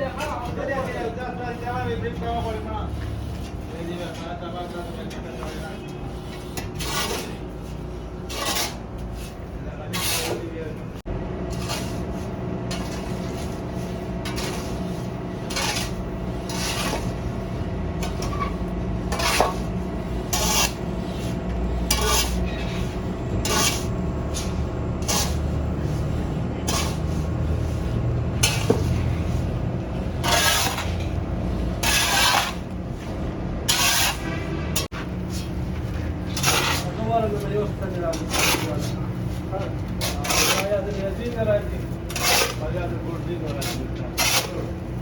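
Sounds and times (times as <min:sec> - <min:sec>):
rasping scraping strokes: 0:00.0 - 0:10.8, 0:11.5 - 0:45.0
low machine hum: 0:10.6 - 0:45.0.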